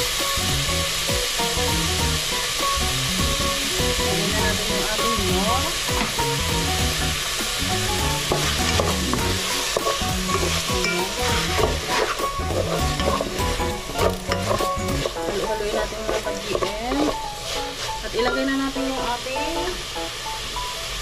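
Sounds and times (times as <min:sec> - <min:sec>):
chicken and carrots sizzling: 0:00.0 - 0:21.0
spatula scraping and knocking pot: 0:08.1 - 0:18.4.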